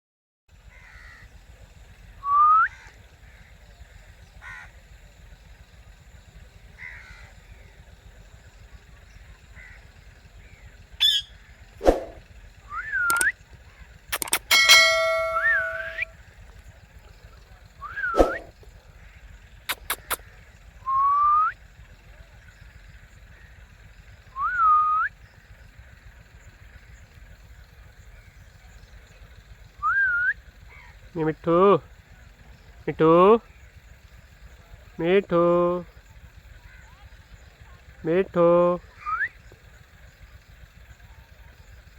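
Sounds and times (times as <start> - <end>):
parrots screeching and calling: 11.0 - 11.3
faint short chirp: 14.2 - 16.1, 17.9 - 18.5, 19.7 - 20.2.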